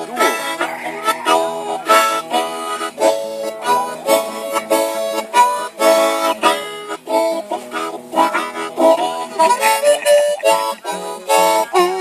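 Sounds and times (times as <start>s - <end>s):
harmonica playing chords: 0.0s - 12.0s.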